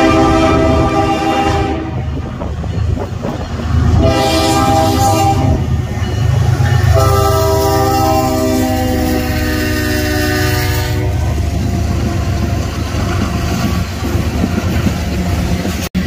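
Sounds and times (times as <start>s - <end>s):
locomotive air horn blasts: 0.0s - 2.2s, 3.9s - 5.8s, 6.8s - 11.4s
low rumble of passing train: 0.0s - 16.0s.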